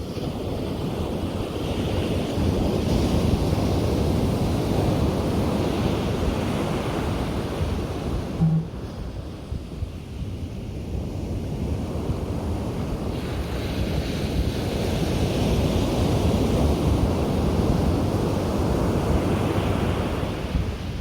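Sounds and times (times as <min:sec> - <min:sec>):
low rumble of the sea: 0:00.0 - 0:21.0
waves rushing on beach: 0:11.5 - 0:21.0.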